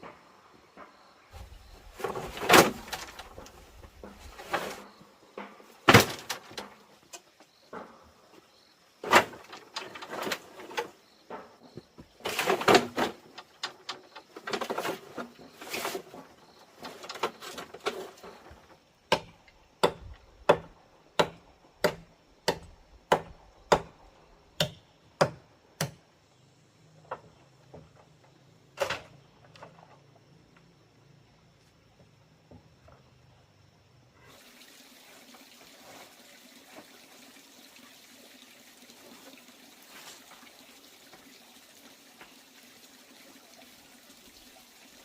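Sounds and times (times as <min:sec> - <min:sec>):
rustling and scraping handling: 0:01.3 - 0:05.8, 0:09.6 - 0:18.8.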